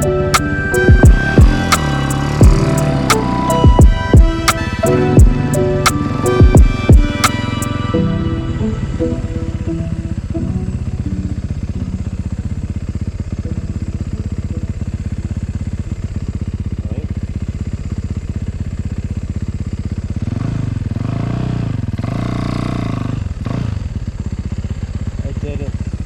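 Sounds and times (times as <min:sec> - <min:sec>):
snow bike engine running: 0:00.0 - 0:26.0.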